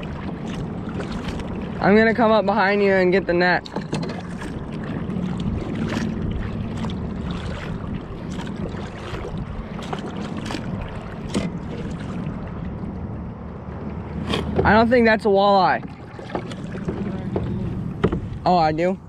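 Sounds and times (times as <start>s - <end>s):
wind noise on microphone: 0.0s - 15.8s
water sloshing along hull: 0.0s - 19.0s
paddle clicks and knocks: 0.1s - 1.9s, 3.4s - 12.3s, 14.1s - 14.8s, 15.7s - 18.5s.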